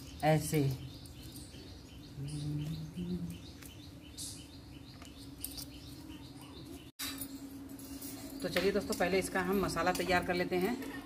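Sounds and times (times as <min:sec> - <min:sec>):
small bird chirping: 0:00.0 - 0:06.9.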